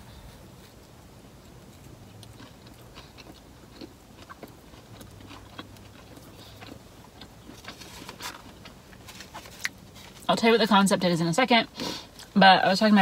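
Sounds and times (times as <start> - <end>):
person chewing sandwich: 0.5 - 10.3.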